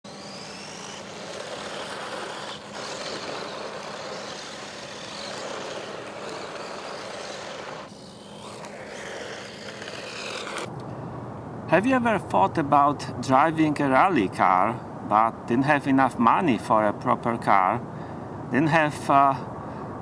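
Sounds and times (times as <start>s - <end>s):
electric motor whining: 0.0s - 10.8s
tyres scrabbling on loose ground: 0.9s - 7.9s.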